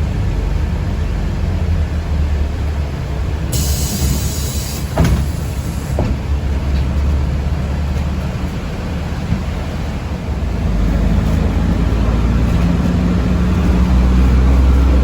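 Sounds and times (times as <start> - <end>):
bus interior rumble: 0.0 - 15.0
sharp air hiss: 3.5 - 6.0.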